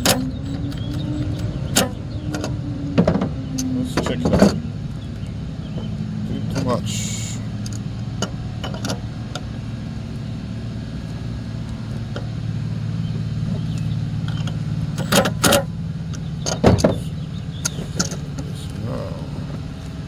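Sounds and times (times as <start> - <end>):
low engine-like hum: 0.0 - 20.0.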